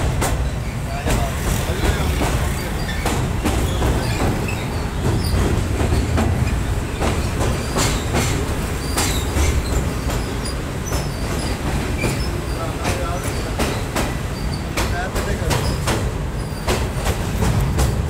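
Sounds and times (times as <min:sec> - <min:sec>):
train rumbling over bridge: 0:00.0 - 0:18.0
wheels clacking over rail joints: 0:00.0 - 0:18.0
high metallic squeaks: 0:02.6 - 0:05.4, 0:14.3 - 0:14.8.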